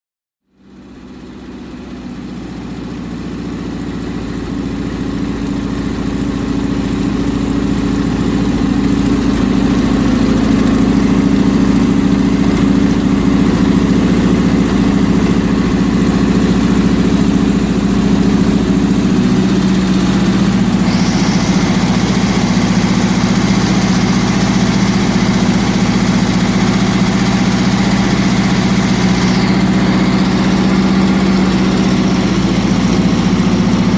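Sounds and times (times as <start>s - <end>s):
flat-four engine running: 0.6s - 33.9s
steady hiss: 20.8s - 25.3s.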